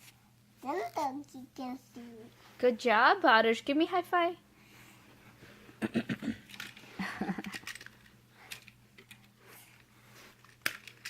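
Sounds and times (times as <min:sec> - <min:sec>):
toy blocks clicking and knocking: 0:07.4 - 0:09.2, 0:10.4 - 0:11.0.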